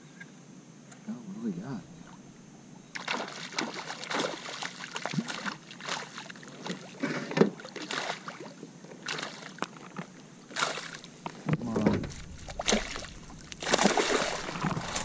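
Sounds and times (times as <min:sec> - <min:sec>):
water splashing against kayak: 0:03.0 - 0:15.0
knocks and clicks on hull: 0:11.2 - 0:15.0.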